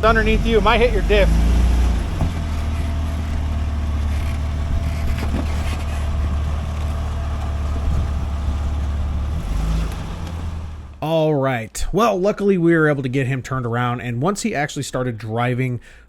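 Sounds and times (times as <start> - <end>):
engine running at low revs: 0.0 - 11.0.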